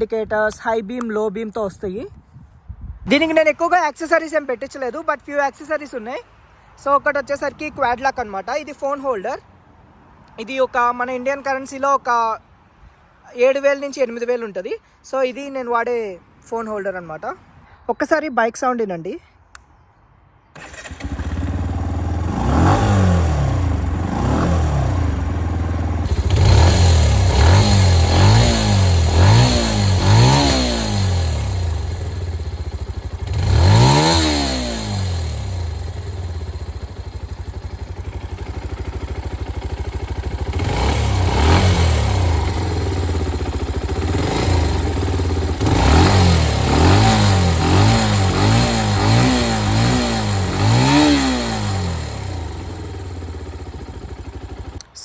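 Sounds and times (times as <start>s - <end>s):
motorcycle engine idling and revving: 20.6s - 55.0s.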